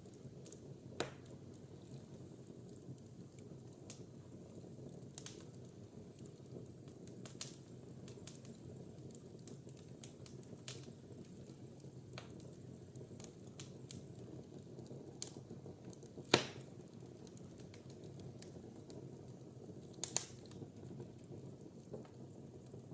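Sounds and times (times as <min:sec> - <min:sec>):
wood fire crackling and popping: 0:00.0 - 0:22.9.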